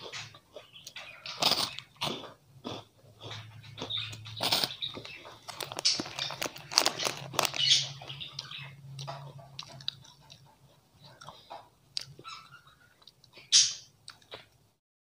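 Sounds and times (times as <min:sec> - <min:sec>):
crunching wafer bar: 0:01.3 - 0:10.1.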